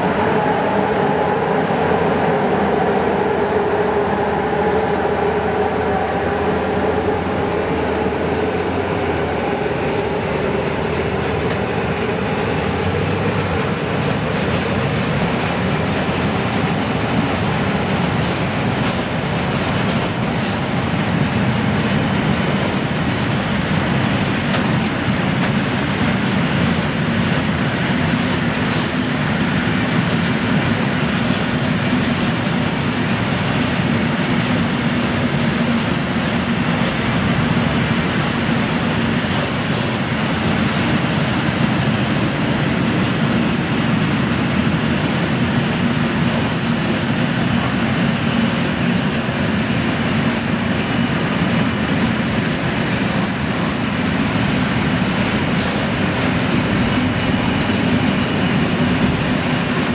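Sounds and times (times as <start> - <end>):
freight wagons rumbling on rails: 0.0 - 59.9.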